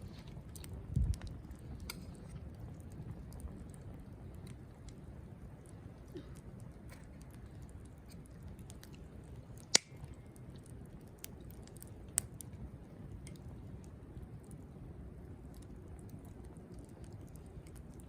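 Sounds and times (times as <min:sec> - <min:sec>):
fire crackles and pops: 0:00.0 - 0:18.0
wood fire burning: 0:00.0 - 0:18.0.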